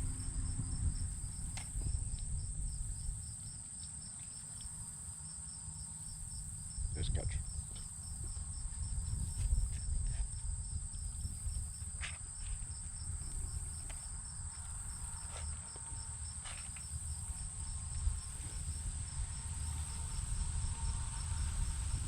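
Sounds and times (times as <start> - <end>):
low rumble: 0.0 - 3.3
insects trilling: 0.0 - 22.0
rapid pulsed insect chirps: 0.0 - 22.0.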